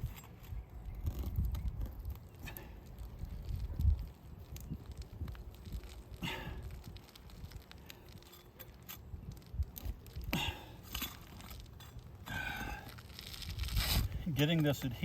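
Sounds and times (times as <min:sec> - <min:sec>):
shingle scraping and tearing: 0:04.5 - 0:15.0.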